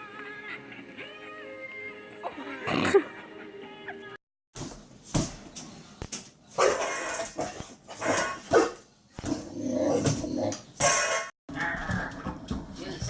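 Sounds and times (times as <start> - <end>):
dog barking: 6.6 - 7.1, 8.0 - 8.8.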